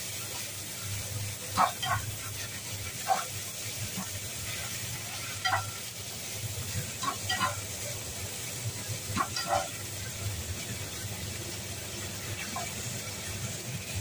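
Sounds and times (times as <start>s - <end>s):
meat sizzling in a frying pan: 0.0s - 14.0s
spatula scraping a pan: 1.6s - 5.9s, 7.0s - 7.7s, 9.1s - 9.9s.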